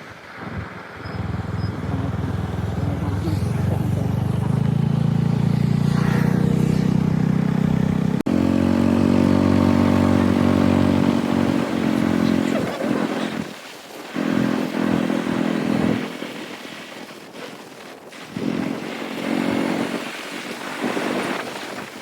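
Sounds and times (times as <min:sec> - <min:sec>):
small engine running: 0:01.2 - 0:22.0.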